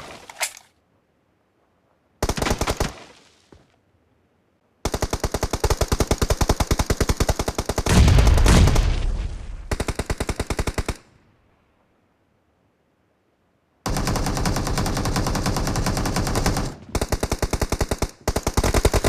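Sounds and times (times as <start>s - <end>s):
video game automatic gunfire: 13.9s - 19.0s.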